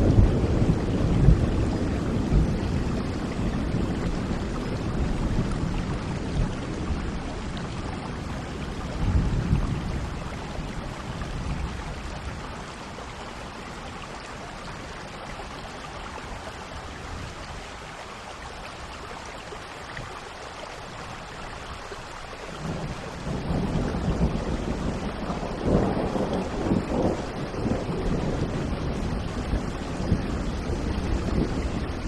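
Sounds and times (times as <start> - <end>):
thunder rumbling: 0.0 - 12.7, 22.6 - 32.0
steady rain: 0.0 - 32.0.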